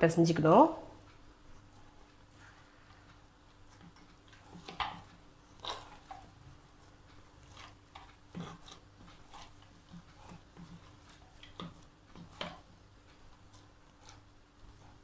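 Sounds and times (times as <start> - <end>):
hands kneading dough: 1.2 - 15.0.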